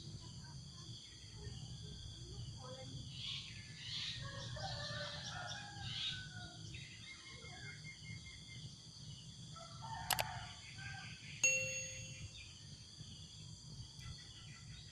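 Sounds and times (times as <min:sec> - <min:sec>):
low outdoor hum: 0:00.0 - 0:14.9
rooster crowing: 0:09.6 - 0:11.2.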